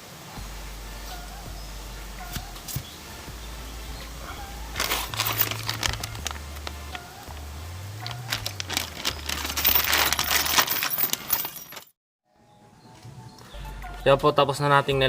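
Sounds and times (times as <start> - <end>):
background music: 0.0 - 11.4, 12.3 - 15.0
metal springs clinking: 4.8 - 7.0, 8.0 - 11.9.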